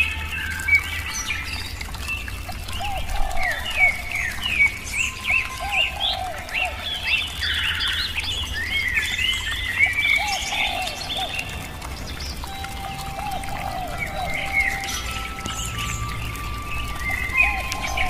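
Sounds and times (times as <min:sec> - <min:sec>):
birds chirping and singing: 0:00.0 - 0:18.0
bird trill: 0:12.4 - 0:18.0.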